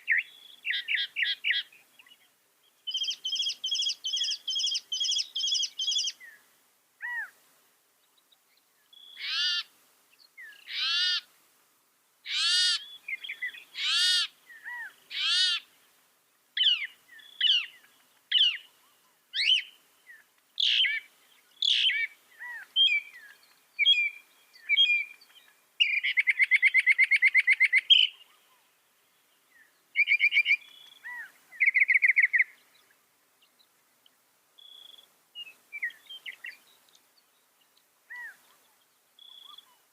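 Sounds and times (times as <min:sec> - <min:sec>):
mockingbird singing: 0:00.0 - 0:02.3, 0:02.9 - 0:06.4, 0:16.6 - 0:28.6, 0:29.6 - 0:32.8, 0:37.8 - 0:39.8.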